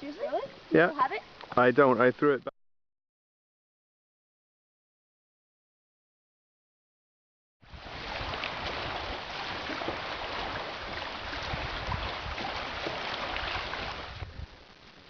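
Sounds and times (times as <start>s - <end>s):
moving water: 7.6s - 15.0s
wind gusting on microphone: 7.7s - 15.0s.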